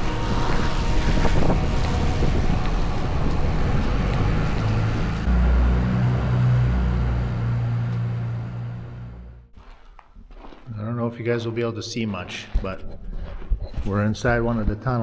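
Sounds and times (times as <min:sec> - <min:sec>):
deep low drone: 0:00.0 - 0:09.5
truck engine rumble: 0:00.0 - 0:09.6
tyres on gravel and wind noise: 0:00.0 - 0:10.7.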